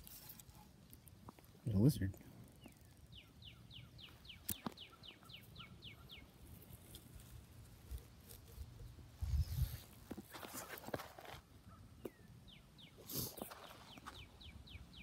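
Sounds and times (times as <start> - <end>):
rustling: 0.0 - 1.6, 6.3 - 11.5
bird singing whistled notes: 2.6 - 6.3, 13.6 - 15.0.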